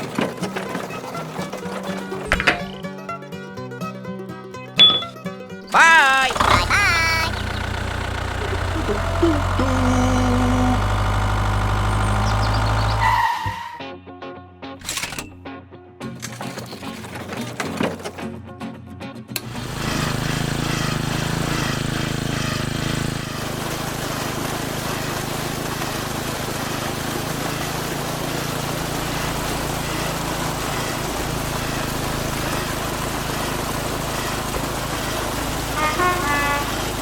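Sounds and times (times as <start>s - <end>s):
short pitched sound: 4.8s - 13.2s, 35.6s - 37.0s
small motor humming: 6.4s - 13.2s, 19.4s - 37.0s.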